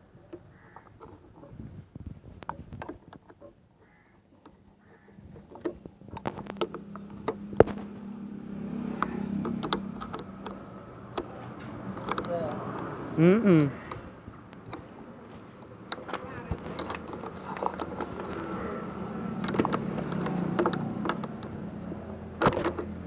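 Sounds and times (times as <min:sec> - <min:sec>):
metallic clicks of tightening nut: 0:19.3 - 0:21.6.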